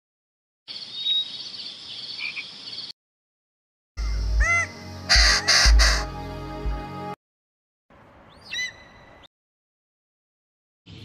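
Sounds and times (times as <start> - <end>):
rising and falling bird notes: 4.0 - 7.1
harsh crow-like calls: 4.4 - 6.1.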